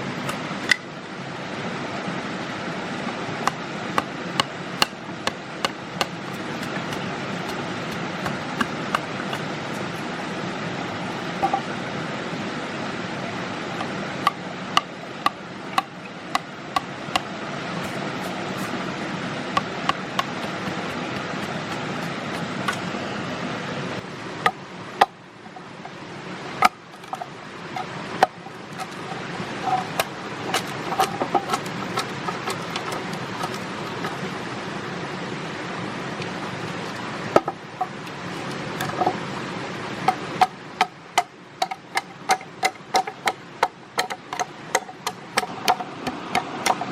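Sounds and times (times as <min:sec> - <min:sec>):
steady hiss: 0:00.0 - 0:46.9
tool knocking on wood: 0:40.1 - 0:46.9.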